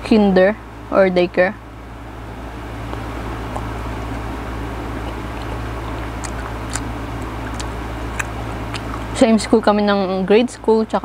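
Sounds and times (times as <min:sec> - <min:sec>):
steady low hum: 0:00.0 - 0:11.0
person chewing mango: 0:02.4 - 0:09.2.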